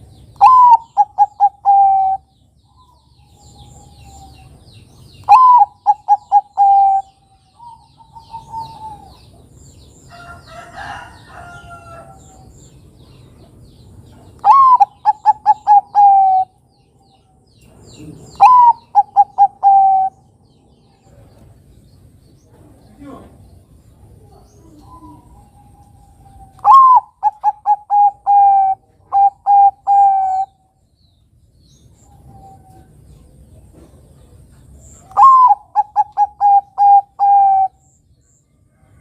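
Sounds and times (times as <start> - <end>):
dove cooing: 0.4 - 4.6, 5.2 - 9.5, 14.4 - 16.6, 18.0 - 20.3, 24.3 - 30.6, 35.0 - 37.9
faint dove cooing: 0.4 - 4.6, 5.3 - 9.5, 14.4 - 16.6, 17.9 - 20.2, 24.1 - 30.6, 32.2 - 37.8.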